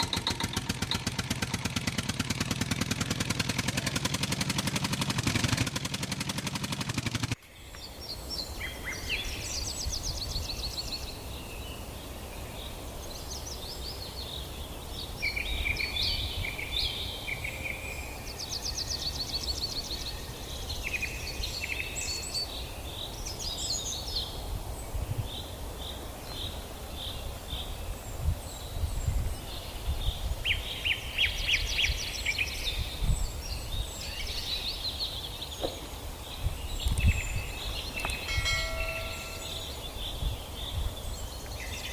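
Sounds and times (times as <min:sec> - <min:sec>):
birds chirping and trilling: 0:00.0 - 0:05.6, 0:07.5 - 0:41.9
loud motor-like noise: 0:00.0 - 0:07.4
low outdoor rumble: 0:00.0 - 0:07.4.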